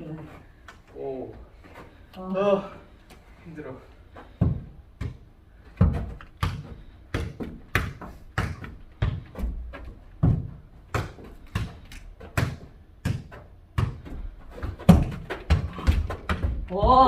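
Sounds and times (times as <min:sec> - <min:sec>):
ball thudding and bouncing: 0:04.3 - 0:17.0.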